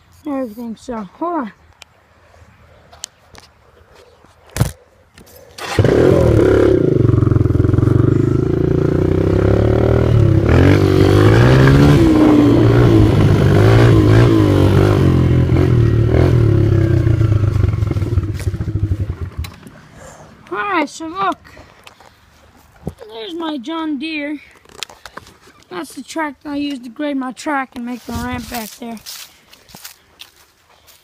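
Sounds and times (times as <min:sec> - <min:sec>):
dirt bike engine revving: 0:05.6 - 0:19.8.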